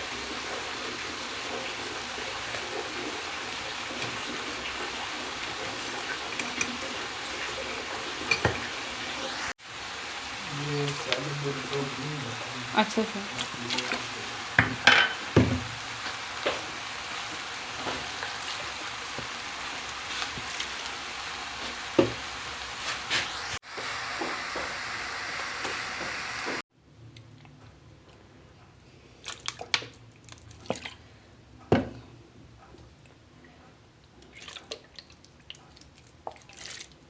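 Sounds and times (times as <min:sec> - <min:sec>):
rice sizzling in a pan: 0:00.0 - 0:26.6.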